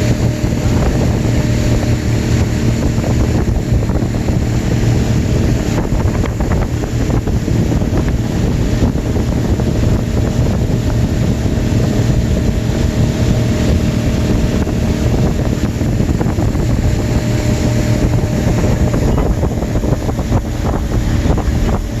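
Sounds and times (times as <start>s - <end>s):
motorboat engine running: 0.0s - 22.0s
wind buffeting microphone: 0.0s - 22.0s.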